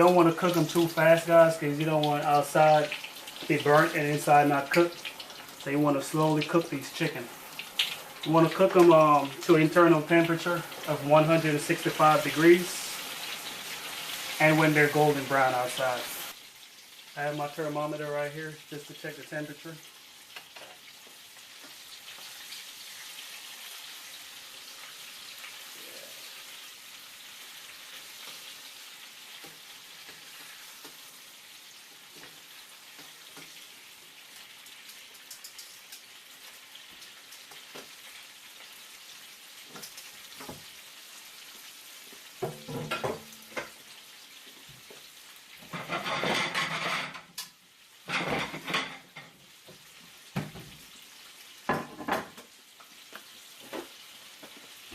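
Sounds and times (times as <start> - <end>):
chicken frying in oil: 0.0 - 54.9.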